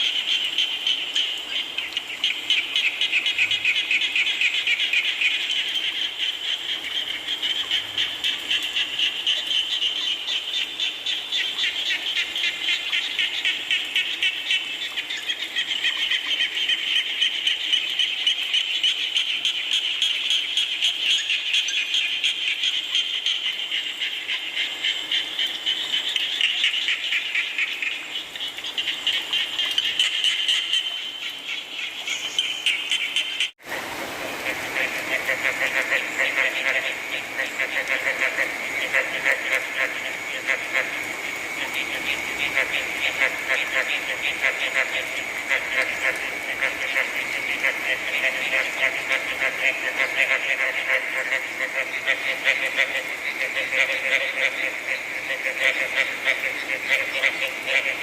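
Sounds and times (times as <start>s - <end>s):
frogs trilling chorus: 0.0s - 58.0s
rain hissing: 33.5s - 58.0s.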